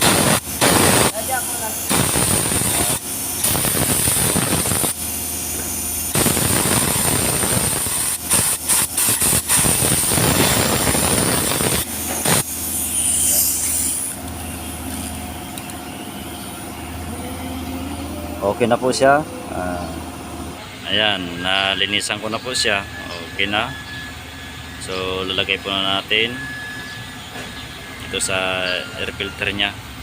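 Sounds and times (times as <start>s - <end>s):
compressed air blow gun hissing: 0.0s - 15.0s
steady machine hum: 0.0s - 30.0s.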